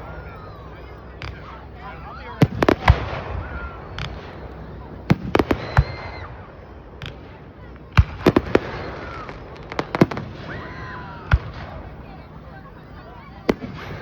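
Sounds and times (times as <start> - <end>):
fireworks cracking: 1.2 - 14.0
faint thin whistles: 3.5 - 6.7.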